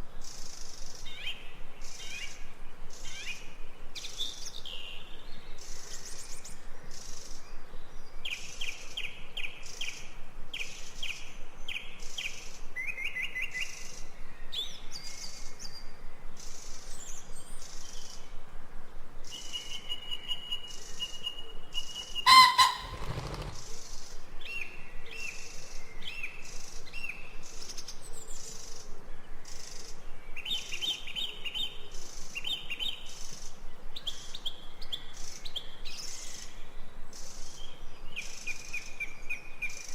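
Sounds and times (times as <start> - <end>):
birds chirping and singing: 22.3 - 23.6
brief loud sound: 22.3 - 23.6.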